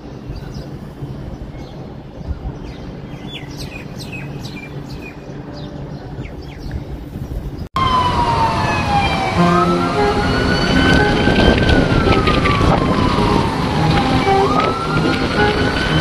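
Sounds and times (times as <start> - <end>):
city traffic rumble: 0.0 - 16.0
small birds chirping: 0.1 - 7.7
siren wail: 7.8 - 16.0.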